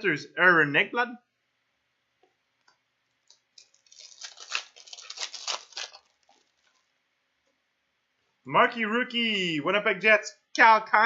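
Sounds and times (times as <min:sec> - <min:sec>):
foil wrapper crinkling and tearing: 0:03.2 - 0:06.9.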